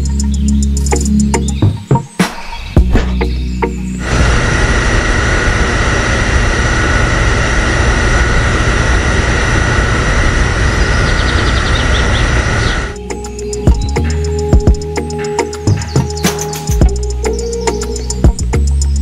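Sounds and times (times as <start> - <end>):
high whine: 0.0 - 19.0
loud engine-like noise: 3.9 - 18.1.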